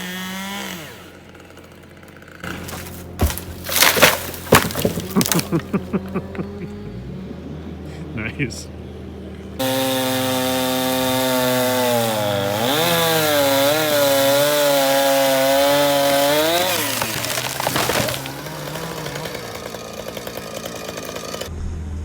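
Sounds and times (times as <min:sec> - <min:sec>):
chainsaw cutting into tree: 0:00.0 - 0:07.8, 0:09.6 - 0:21.5.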